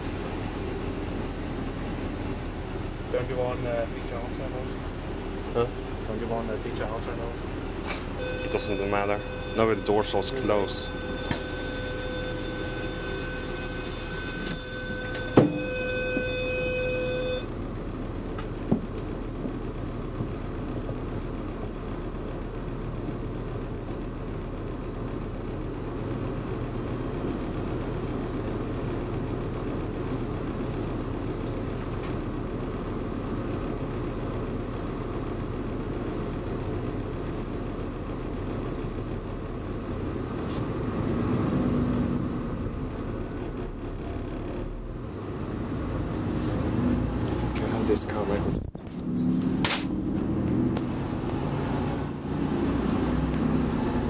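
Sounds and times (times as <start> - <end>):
diesel engine running: 0.0 - 54.0
door warning buzzer: 8.2 - 17.5
train door thump: 14.4 - 16.4.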